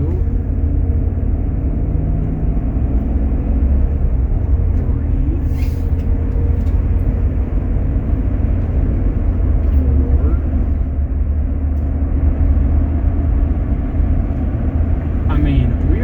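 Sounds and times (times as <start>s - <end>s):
road and engine rumble: 0.0s - 16.0s.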